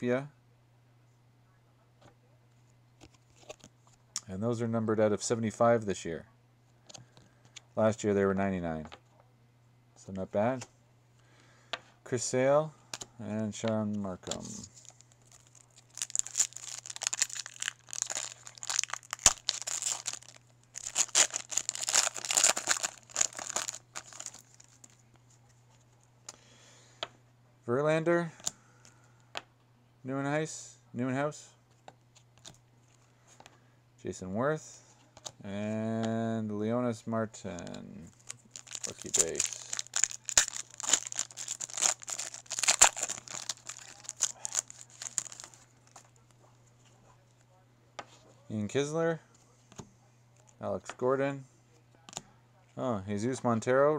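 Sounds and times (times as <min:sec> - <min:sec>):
wrapper crinkling and tearing: 0:14.2 - 0:25.0, 0:38.1 - 0:46.3.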